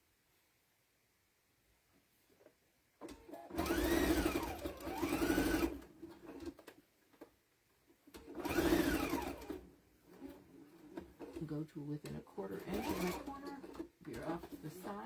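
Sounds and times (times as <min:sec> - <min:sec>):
sewing machine motor stitching: 0:03.0 - 0:06.8, 0:08.1 - 0:11.6, 0:12.4 - 0:15.0.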